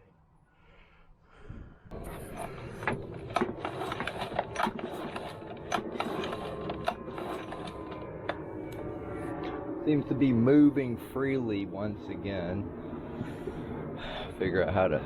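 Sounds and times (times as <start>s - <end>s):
outboard motor mechanical rattling: 1.9s - 8.8s.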